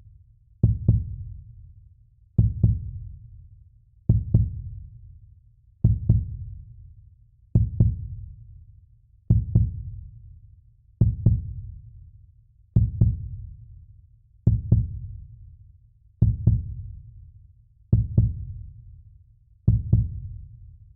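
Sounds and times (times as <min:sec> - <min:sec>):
heartbeat thumps: 0:05.9 - 0:06.3, 0:12.8 - 0:13.2, 0:14.5 - 0:15.0, 0:16.2 - 0:16.8, 0:18.0 - 0:18.5, 0:19.7 - 0:20.2.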